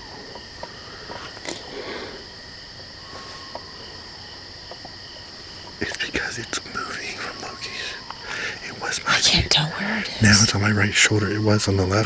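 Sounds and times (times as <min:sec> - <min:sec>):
night insects trilling: 0:00.0 - 0:12.0.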